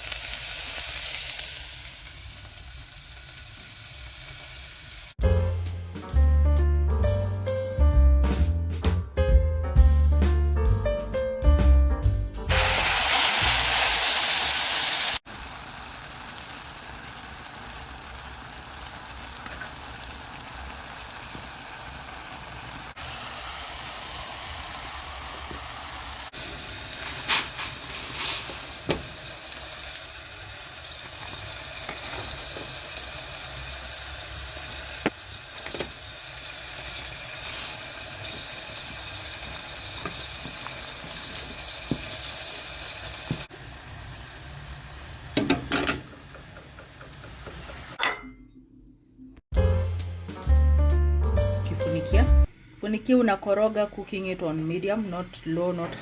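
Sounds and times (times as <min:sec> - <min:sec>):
food sizzling in a pan: 0:00.0 - 0:05.2, 0:12.5 - 0:48.0.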